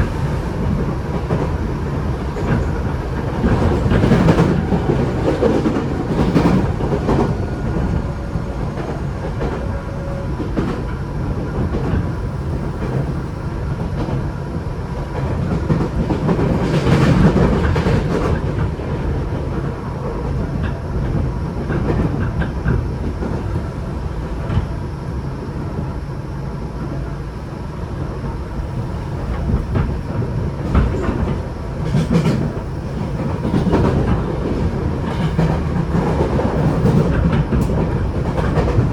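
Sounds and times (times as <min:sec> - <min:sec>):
wheels clacking over rail joints: 0:00.0 - 0:12.2
train wheels rumbling on rail: 0:00.0 - 0:38.9.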